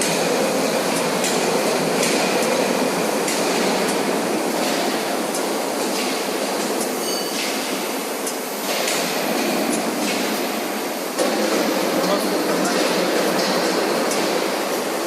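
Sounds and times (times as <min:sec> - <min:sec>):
industrial drilling machine noise: 0:11.1 - 0:15.0.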